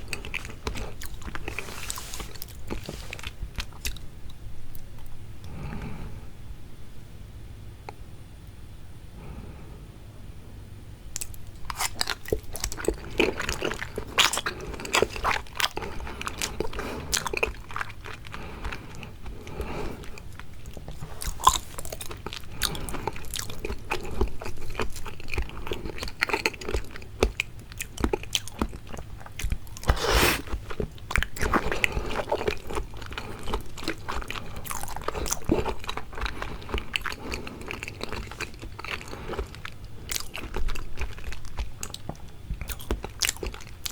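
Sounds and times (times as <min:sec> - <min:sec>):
chewing and biting seafood: 0:00.0 - 0:04.1, 0:11.2 - 0:43.9.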